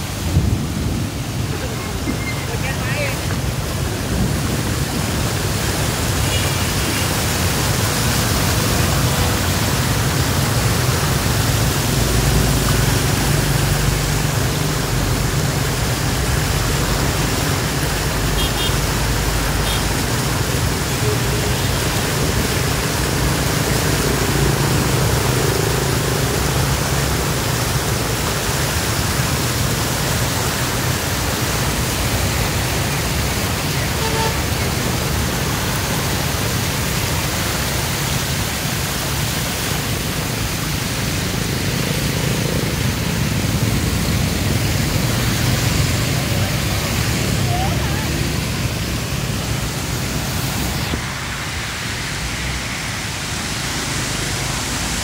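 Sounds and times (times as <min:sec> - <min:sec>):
rain hissing: 0:00.0 - 0:55.0.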